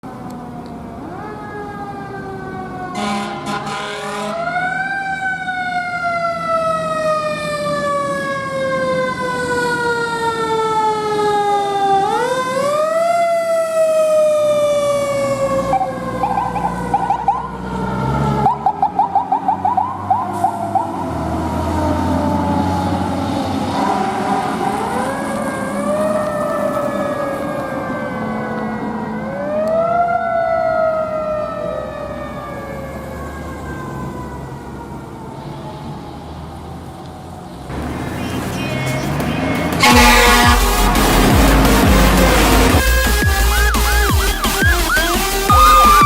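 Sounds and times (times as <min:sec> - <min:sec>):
fire engine siren wailing: 0:00.0 - 0:46.0
short horn blasts: 0:03.0 - 0:04.4, 0:38.2 - 0:46.0.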